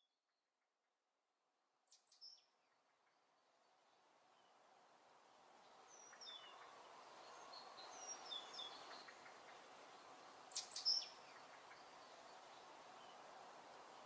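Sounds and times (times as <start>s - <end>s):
steady hiss: 3.4s - 14.0s
bird chirps: 5.9s - 13.2s.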